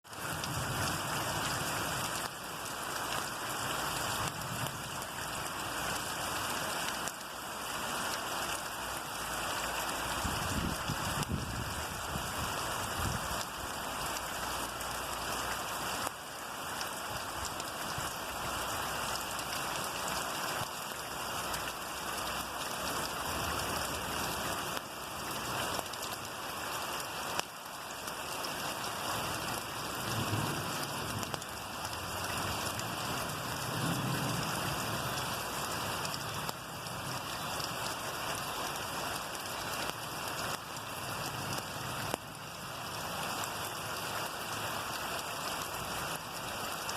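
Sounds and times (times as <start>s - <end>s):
steady rainfall: 0.0s - 46.9s.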